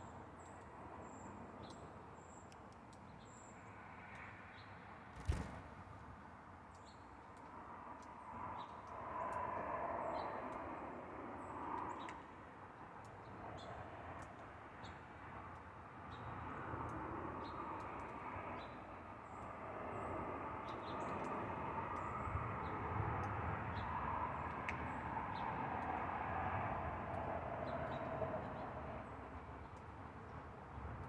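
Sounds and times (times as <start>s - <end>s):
small birds chirping: 0.0s - 6.1s.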